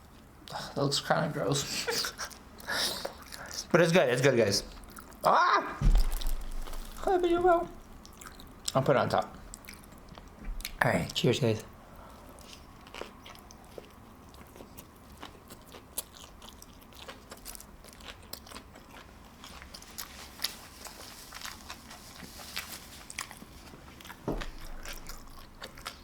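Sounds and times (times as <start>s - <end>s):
biting and chewing food: 4.7s - 5.2s, 5.8s - 11.2s, 12.0s - 26.0s
crisp crunching: 5.8s - 8.8s, 16.9s - 26.0s.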